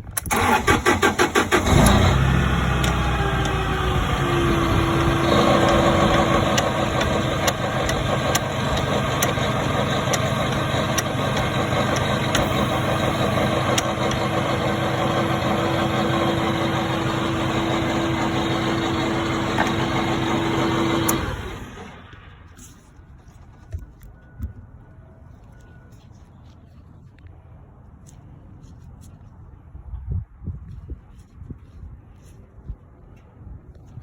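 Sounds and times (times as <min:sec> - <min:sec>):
engine shutting off: 0:00.2 - 0:22.4
forklift engine running: 0:00.2 - 0:22.6.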